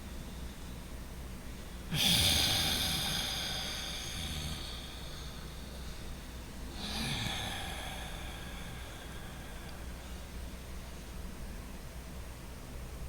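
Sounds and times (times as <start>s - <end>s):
person breathing through nose: 1.9s - 10.4s.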